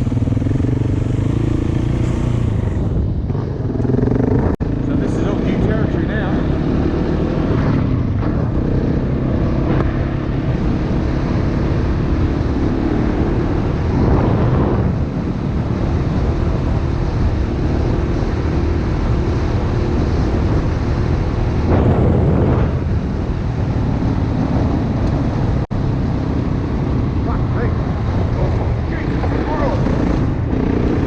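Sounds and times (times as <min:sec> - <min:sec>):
dirt bike engine running: 0:00.0 - 0:18.8, 0:28.2 - 0:31.0
wind buffeting microphone: 0:00.0 - 0:31.0.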